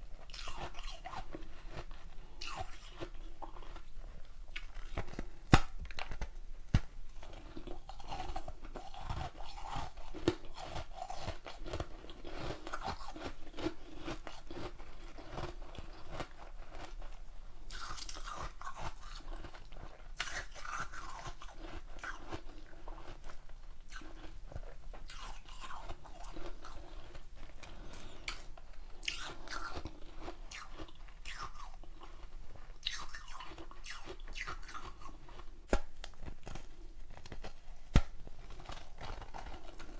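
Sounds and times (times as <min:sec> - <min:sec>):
person crunching ice: 0:07.2 - 0:17.1, 0:17.7 - 0:23.2, 0:32.8 - 0:39.9.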